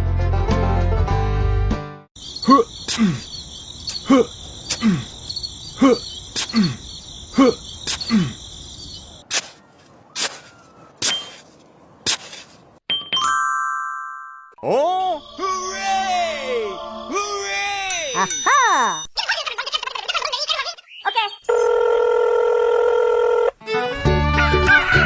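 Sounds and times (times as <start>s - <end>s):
insect chirring: 2.2s - 9.2s.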